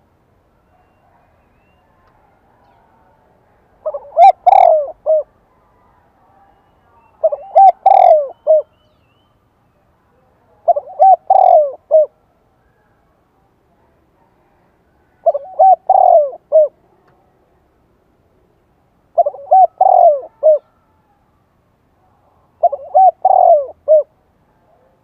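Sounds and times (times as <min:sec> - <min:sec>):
dove cooing: 0:03.8 - 0:08.8, 0:10.6 - 0:12.2, 0:14.4 - 0:16.8, 0:19.1 - 0:21.2, 0:22.6 - 0:24.2.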